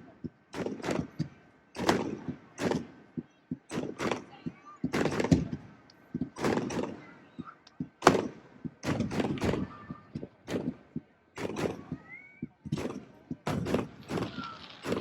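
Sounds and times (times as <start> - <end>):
fireworks exploding: 12.6 - 15.0.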